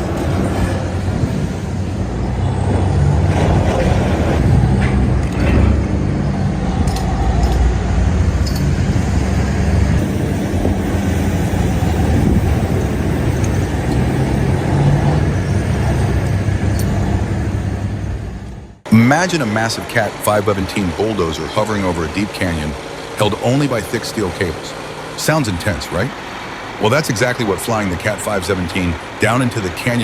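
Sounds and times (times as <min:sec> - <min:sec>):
heavy machinery diesel engine: 0:00.0 - 0:30.0.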